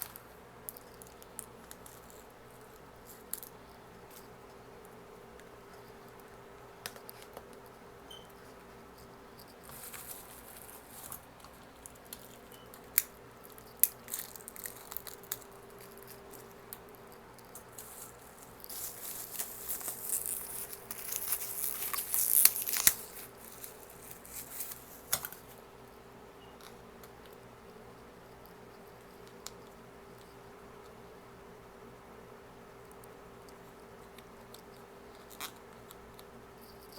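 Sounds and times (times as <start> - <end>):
food packaging crinkling: 9.6 - 25.6.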